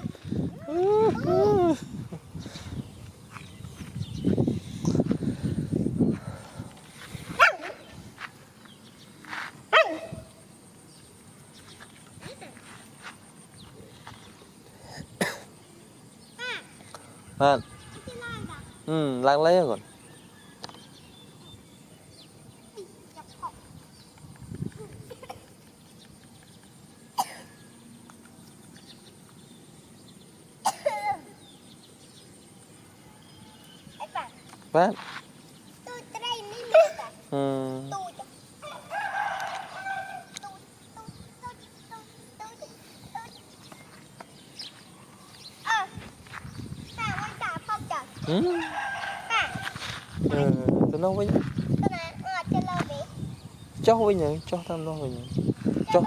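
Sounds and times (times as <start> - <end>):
dog yelping: 7.4 - 7.8, 9.7 - 10.2.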